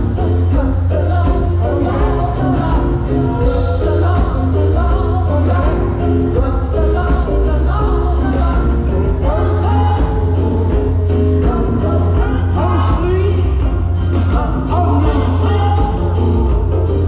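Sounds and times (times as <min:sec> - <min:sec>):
amplified live band: 0:00.0 - 0:17.0
gospel choir singing: 0:00.0 - 0:17.0
heavy bass line: 0:00.0 - 0:17.0.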